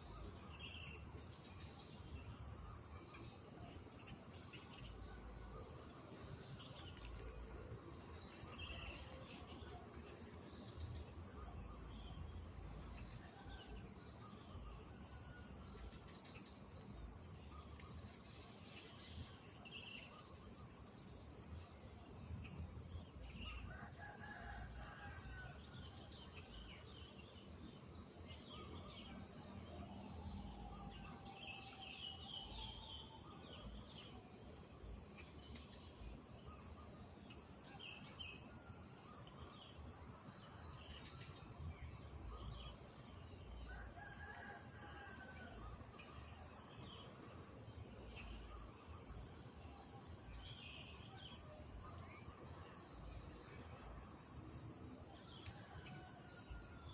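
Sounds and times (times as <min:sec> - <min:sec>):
insects droning: 0:00.0 - 0:56.9.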